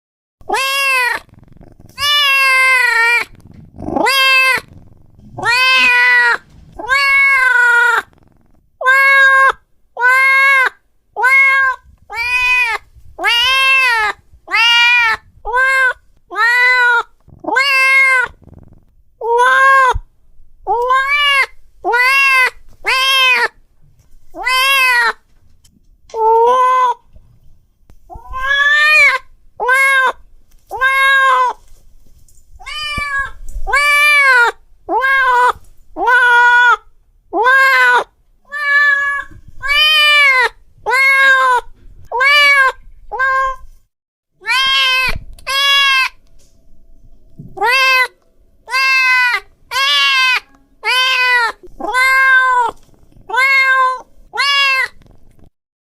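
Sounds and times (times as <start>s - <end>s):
cat meowing loudly: 0.4s - 1.3s, 1.9s - 4.8s, 5.4s - 8.2s, 8.8s - 18.4s, 19.2s - 20.0s, 20.7s - 23.6s, 24.4s - 25.2s, 26.2s - 27.0s, 28.1s - 31.6s, 32.6s - 36.8s, 37.4s - 43.7s, 44.4s - 46.2s, 47.5s - 55.0s.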